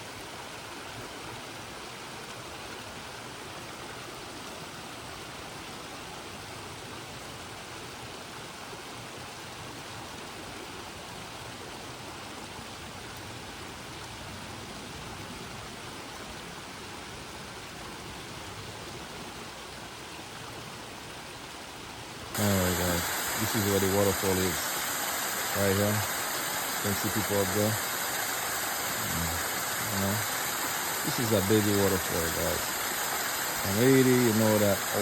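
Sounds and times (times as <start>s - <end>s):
water rushing from waterfall: 15.8s - 35.0s.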